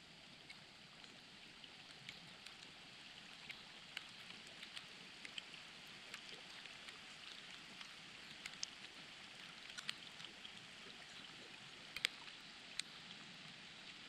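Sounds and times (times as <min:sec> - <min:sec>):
raindrop ticks: 0:01.8 - 0:02.7, 0:03.3 - 0:10.5, 0:11.8 - 0:13.0.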